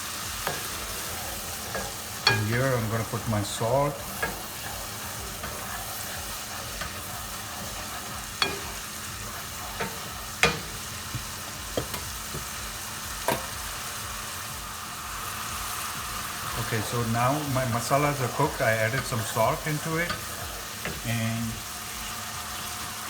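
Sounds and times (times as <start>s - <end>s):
paste sizzling in a pan: 0.0s - 23.0s
spoon knocking against pan: 0.4s - 3.2s, 4.0s - 13.7s.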